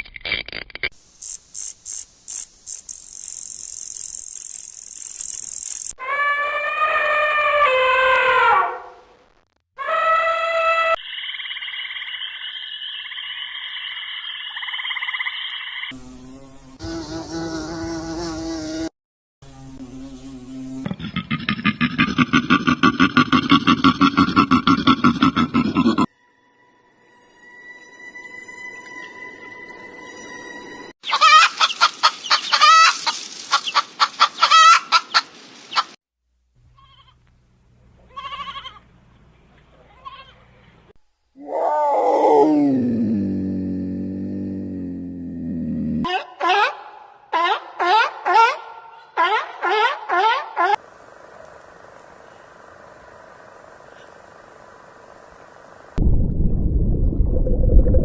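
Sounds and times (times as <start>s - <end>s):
animal buzzing trill: 1.2s - 6.0s, 15.9s - 21.2s
chickens clucking and cackling: 31.1s - 36.0s.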